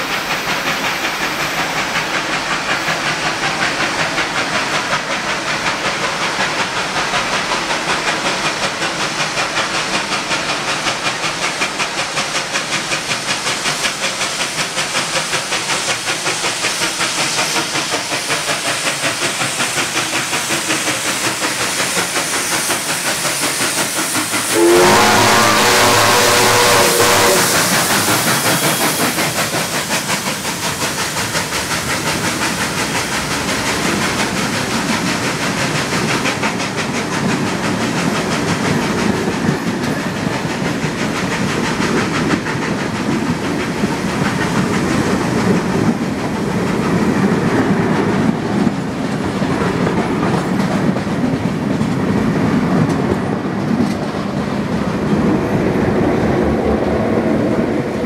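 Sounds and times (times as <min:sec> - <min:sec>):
steam hiss: 0:00.0 - 0:58.0.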